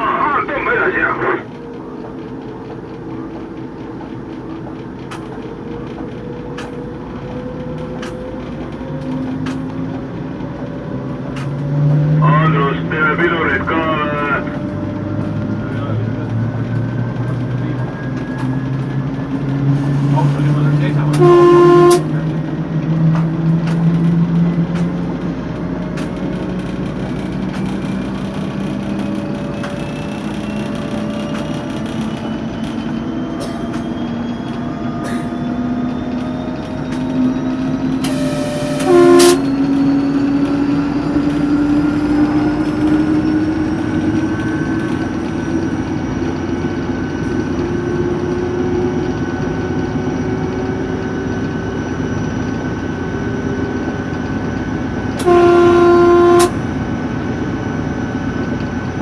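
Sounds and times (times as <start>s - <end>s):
diesel locomotive whining under power: 0.0s - 59.0s
locomotive horn: 20.9s - 22.4s, 38.0s - 40.0s, 55.2s - 56.8s
turbocharger whistle: 21.0s - 22.2s, 29.5s - 41.1s, 55.2s - 56.6s.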